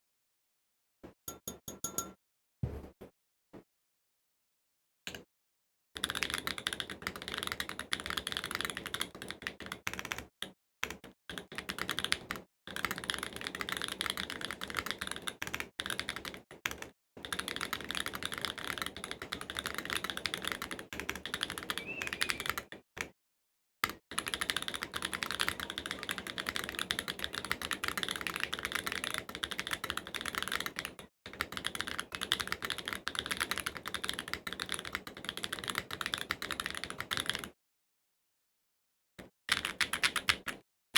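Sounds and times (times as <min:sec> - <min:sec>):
fast typing on mechanical keyboard: 0:06.0 - 0:23.1, 0:23.8 - 0:37.6, 0:39.5 - 0:40.6.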